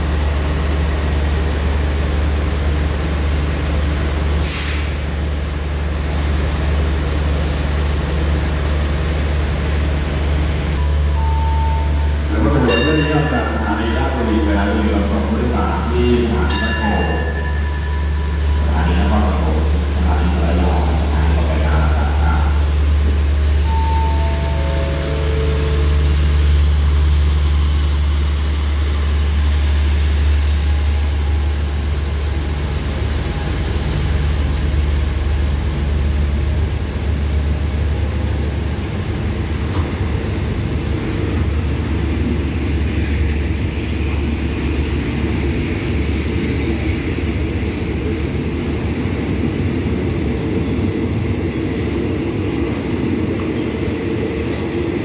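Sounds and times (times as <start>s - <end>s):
diesel train idling hum: 0.0s - 55.0s
falling electronic chime tones: 10.8s - 13.2s, 23.6s - 25.8s.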